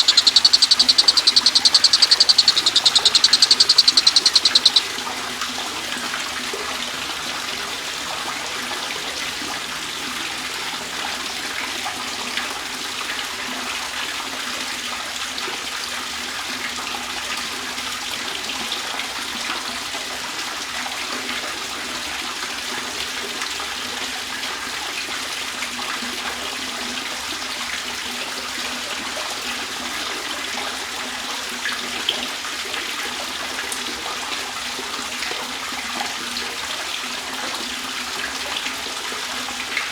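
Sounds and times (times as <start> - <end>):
faint clicks: 0.0 - 4.8
water trickling and splashing: 0.0 - 5.0.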